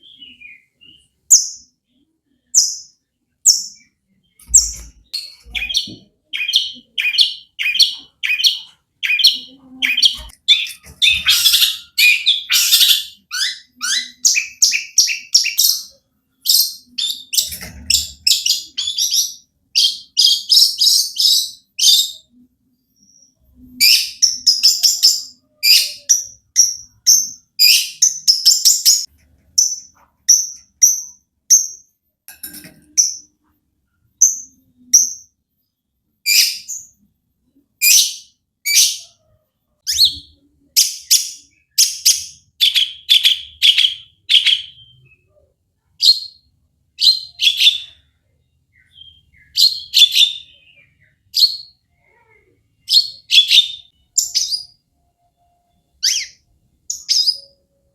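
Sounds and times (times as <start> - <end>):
bird singing harsh notes: 0.0 - 22.3, 55.8 - 57.6.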